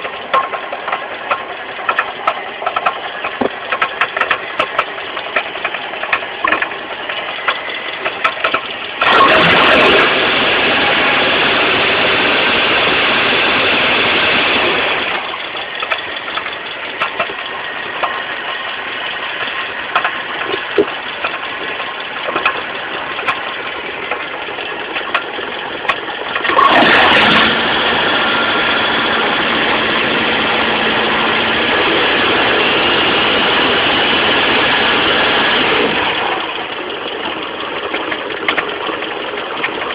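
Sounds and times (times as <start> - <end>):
knocking clicks from loose pulley: 0.0 - 9.1, 15.3 - 18.6, 19.3 - 26.6, 36.4 - 39.9
car engine idling and revving: 0.0 - 39.9.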